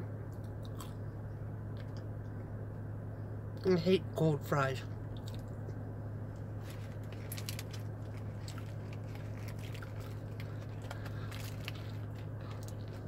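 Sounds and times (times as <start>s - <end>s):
steady low hum: 0.0s - 13.0s
person chewing fries: 0.3s - 2.0s, 6.5s - 13.0s.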